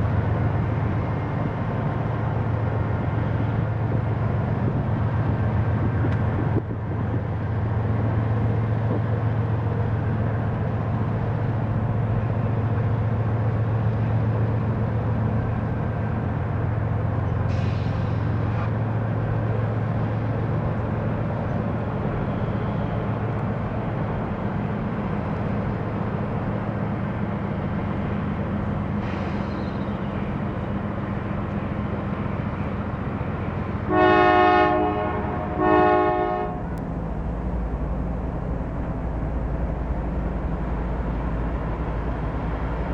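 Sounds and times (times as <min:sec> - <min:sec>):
diesel locomotive engine droning: 0:00.0 - 0:42.9
brief hisses: 0:17.4 - 0:18.8, 0:29.0 - 0:30.0
multi-chime train horn: 0:33.9 - 0:36.6.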